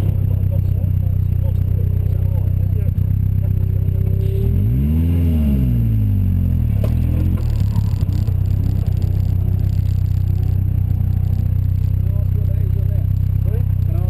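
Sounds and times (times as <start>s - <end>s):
sports car engine revving: 0.0s - 14.0s.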